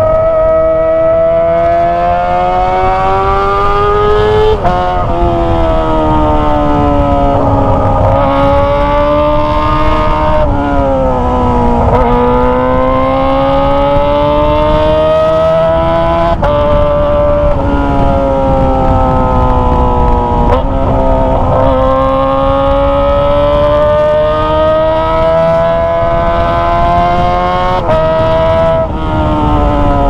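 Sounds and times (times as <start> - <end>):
gear changes: 0.0 - 30.0
motorcycle engine revving: 0.0 - 30.0.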